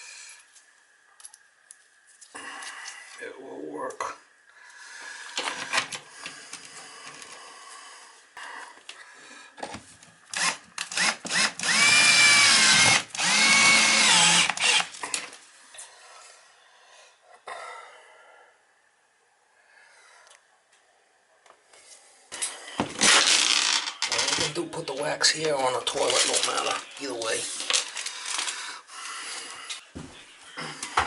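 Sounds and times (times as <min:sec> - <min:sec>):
power drill driving screws: 0:10.3 - 0:15.0, 0:23.0 - 0:24.5.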